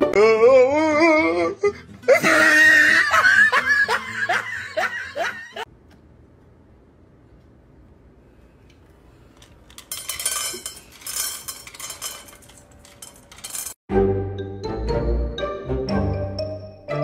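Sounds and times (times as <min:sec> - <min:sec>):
music: 0:00.0 - 0:04.7, 0:13.9 - 0:17.0
kibble rattling into metal bowl: 0:09.7 - 0:13.8.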